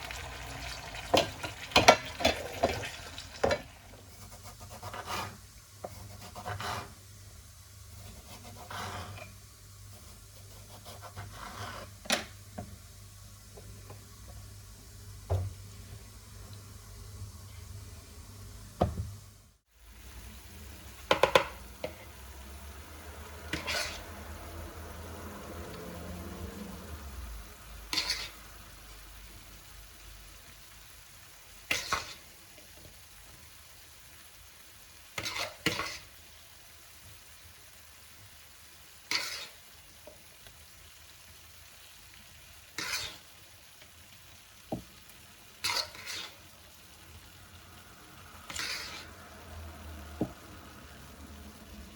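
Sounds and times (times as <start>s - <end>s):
faint sizzle: 0.0s - 51.9s
utensil scraping frying pan: 0.1s - 7.1s, 7.9s - 12.4s, 21.0s - 22.3s, 23.4s - 24.6s, 27.8s - 28.6s, 31.6s - 32.9s, 35.0s - 36.2s, 39.0s - 40.2s, 42.7s - 43.4s, 45.5s - 46.7s, 48.4s - 50.5s.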